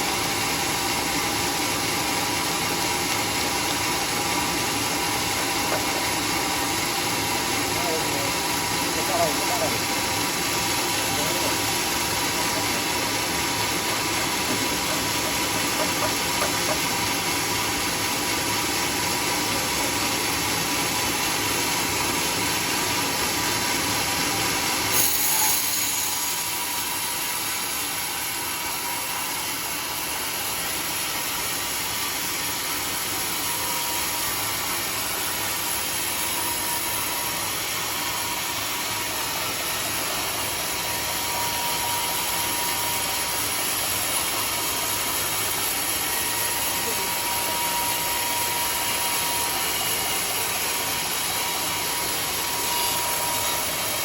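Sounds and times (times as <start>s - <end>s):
sawmill machinery hiss and hum: 0.0s - 54.0s.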